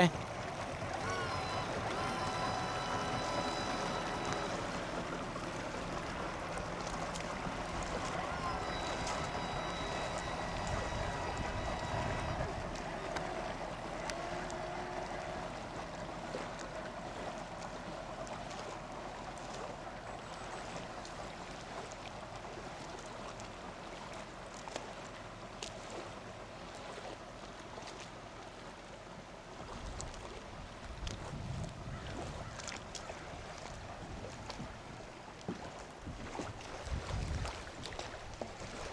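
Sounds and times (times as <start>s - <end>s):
boat motor running: 0.0s - 28.3s, 29.4s - 38.9s
rushing water: 0.0s - 38.9s
wind noise: 31.0s - 32.5s, 36.1s - 37.6s.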